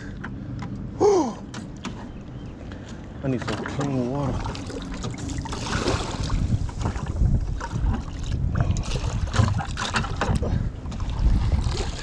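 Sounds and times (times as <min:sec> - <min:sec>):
wind buffeting microphone: 0:03.9 - 0:12.0.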